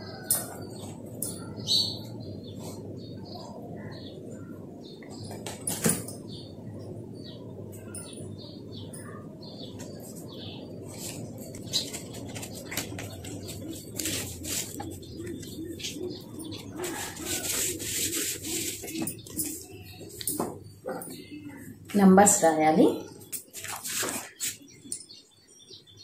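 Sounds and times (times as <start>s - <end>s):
low background hum: 0.0s - 23.8s
birds chirping: 0.0s - 26.0s
paper rustling and clicks: 11.0s - 15.5s.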